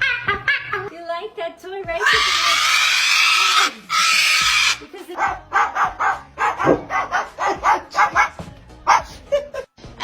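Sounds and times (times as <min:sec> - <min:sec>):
parrot squawking: 0:02.0 - 0:04.9.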